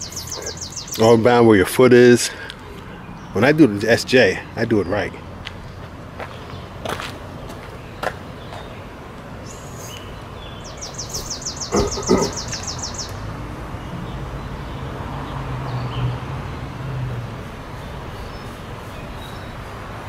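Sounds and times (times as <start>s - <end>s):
bird trilling: 0.0s - 1.0s, 9.4s - 13.2s.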